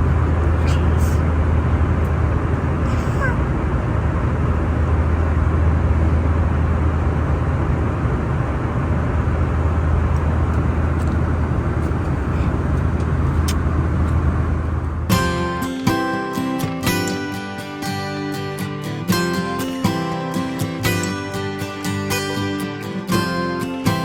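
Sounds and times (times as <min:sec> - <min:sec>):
vehicle cabin rumble and hiss: 0:00.0 - 0:15.2.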